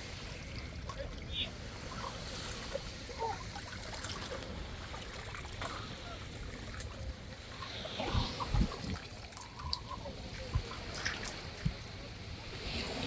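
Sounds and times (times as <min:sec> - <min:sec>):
wind and surf: 0:00.0 - 0:13.0
wind thuds on microphone: 0:08.0 - 0:09.0.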